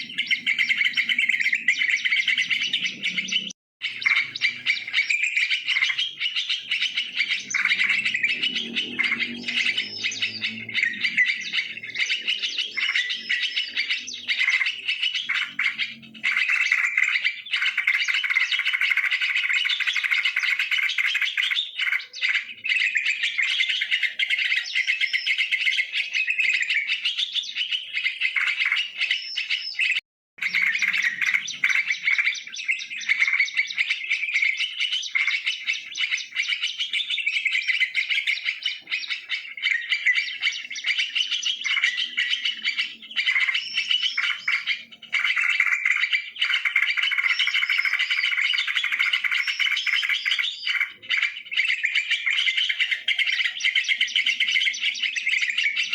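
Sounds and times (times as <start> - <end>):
bulbuls calling and chattering: 0.0 - 55.9.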